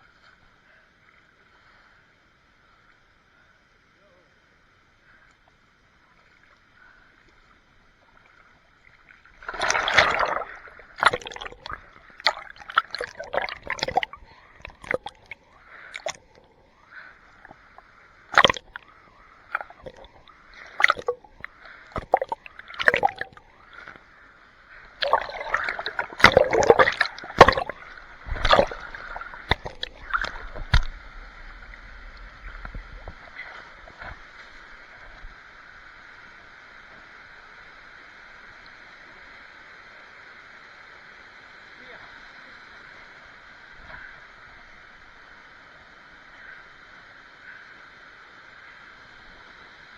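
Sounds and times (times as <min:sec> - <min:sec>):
water splashing from swimming: 0:08.9 - 0:16.5, 0:17.4 - 0:24.1, 0:24.7 - 0:35.4.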